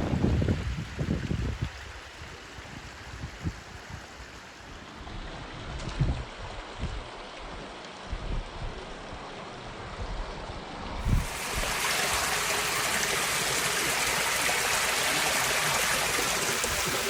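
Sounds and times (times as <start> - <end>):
wind buffeting microphone: 0.0 - 4.4, 11.0 - 13.1
steady hiss: 11.0 - 17.0.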